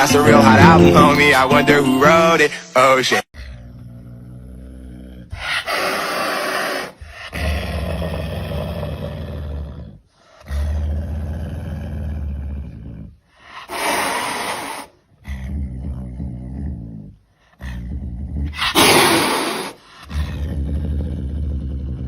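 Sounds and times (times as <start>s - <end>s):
rough animal growls: 3.4s - 13.2s, 15.2s - 22.0s.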